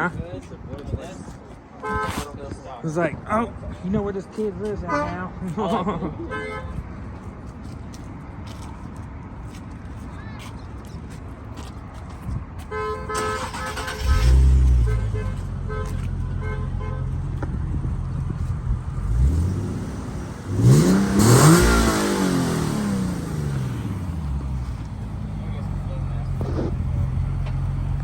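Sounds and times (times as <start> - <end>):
car engine starting and revving: 13.2 - 15.0, 17.7 - 28.0.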